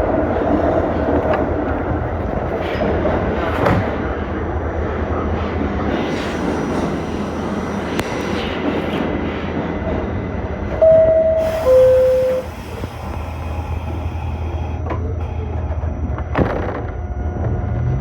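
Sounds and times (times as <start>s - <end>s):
subway car rumbling: 0.0s - 18.0s
two-tone door chime: 10.8s - 12.5s.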